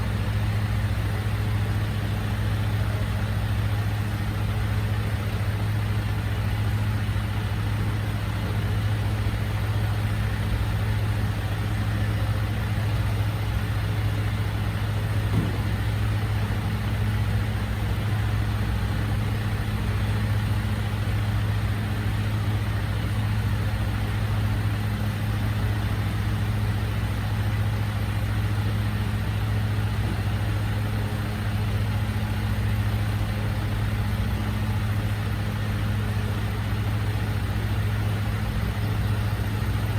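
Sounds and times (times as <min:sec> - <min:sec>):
truck engine idling: 0:00.0 - 0:39.9
short knock: 0:15.3 - 0:16.0.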